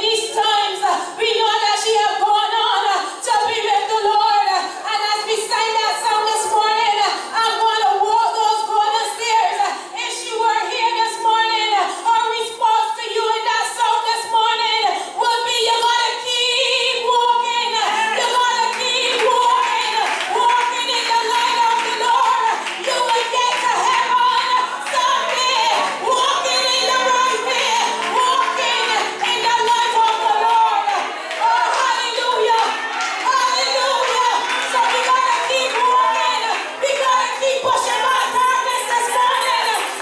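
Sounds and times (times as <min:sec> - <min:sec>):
music: 0:00.0 - 0:40.0
person singing: 0:16.2 - 0:40.0.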